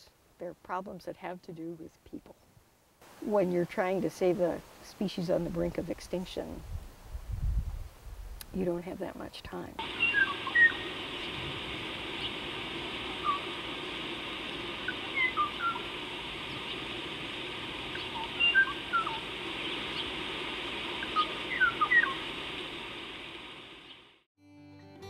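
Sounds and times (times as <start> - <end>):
steady background hiss: 0.0 - 24.3
birds chirping and whistling: 9.8 - 11.4, 13.1 - 13.6, 14.8 - 16.9, 17.9 - 20.2, 21.0 - 22.3.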